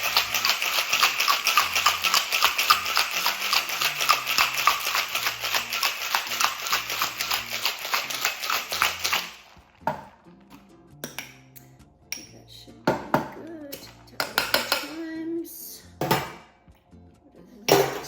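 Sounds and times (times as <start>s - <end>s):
ice rattling in cocktail shaker: 0.0s - 9.9s.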